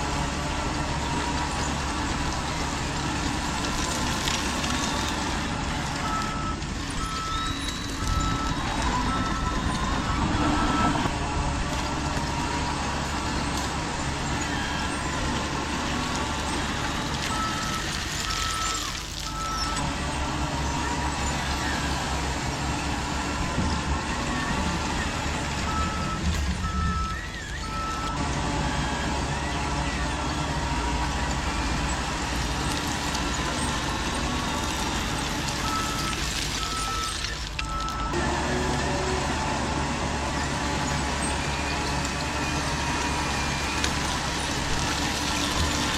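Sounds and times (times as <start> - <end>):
toy truck running: 0.0 - 11.0, 11.8 - 45.9
reversing beeper: 6.0 - 11.2, 16.4 - 19.9, 23.6 - 32.0.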